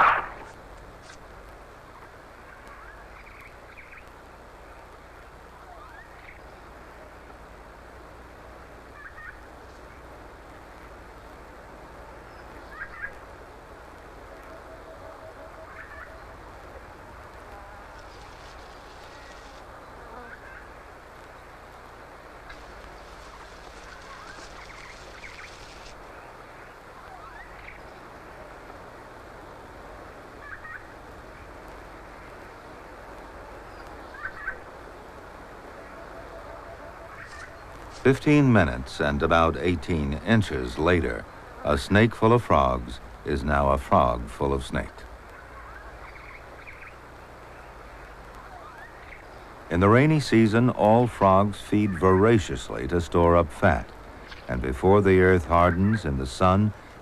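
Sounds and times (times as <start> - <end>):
background hiss: 0.0 - 57.0
low hum: 0.0 - 57.0
chorus of calling frogs: 8.9 - 9.5, 12.6 - 13.3, 14.3 - 18.4, 30.4 - 31.0, 33.7 - 34.7, 35.7 - 37.8, 45.3 - 49.5.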